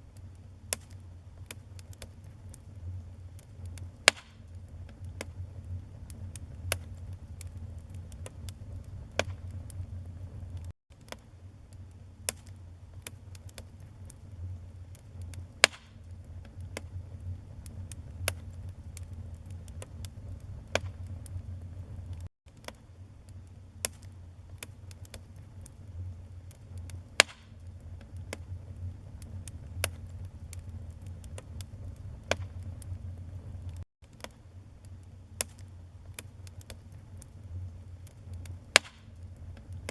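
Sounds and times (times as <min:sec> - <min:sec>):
low fire rumble: 0:00.0 - 0:33.8, 0:34.4 - 0:39.9
wood fire crackling and popping: 0:00.1 - 0:39.9.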